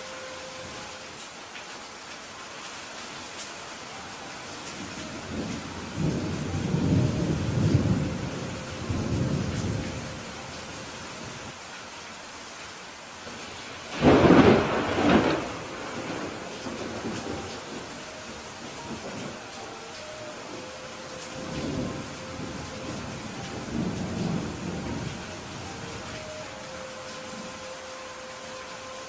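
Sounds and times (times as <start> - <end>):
steady rainfall: 0.0 - 29.0
low rumble of thunder: 5.1 - 11.5, 13.9 - 19.5, 20.4 - 26.2.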